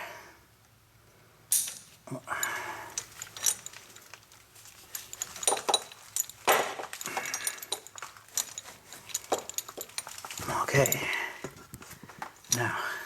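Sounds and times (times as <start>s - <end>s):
metallic clinks and rattles: 1.5s - 12.7s.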